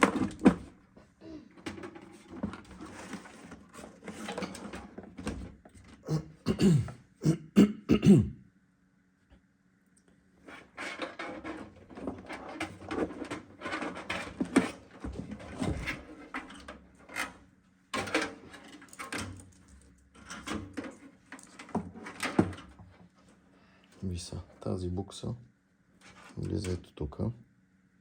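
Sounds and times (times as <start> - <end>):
cables and plastic rustling: 0.0 - 6.0, 10.4 - 24.7.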